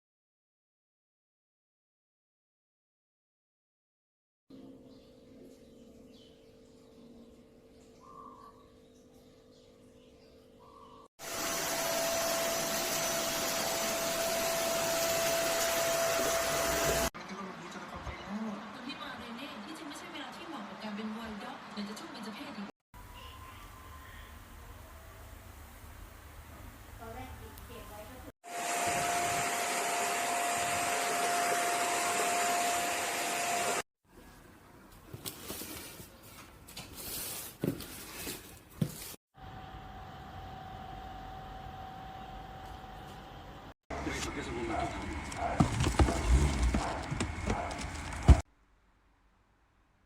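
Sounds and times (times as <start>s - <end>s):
vacuum cleaner running: 11.2s - 17.1s, 28.4s - 33.8s, 43.9s - 48.4s.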